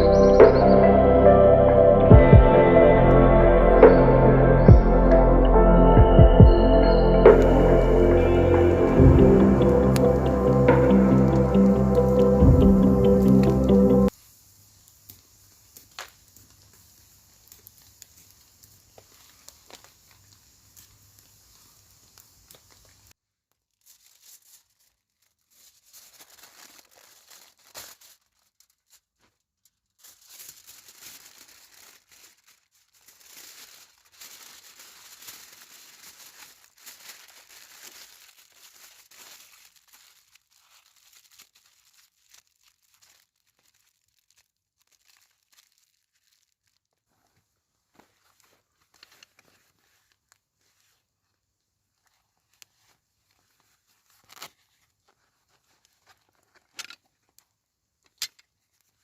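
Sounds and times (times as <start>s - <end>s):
faint steady noise: 14.0s - 23.2s
crinkling and rustling: 15.7s - 59.0s.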